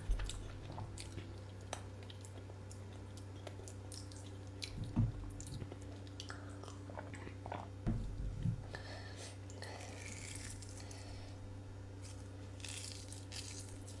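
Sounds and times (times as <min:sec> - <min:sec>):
steady low hum: 0:00.0 - 0:14.0
low thumps: 0:07.9 - 0:08.7.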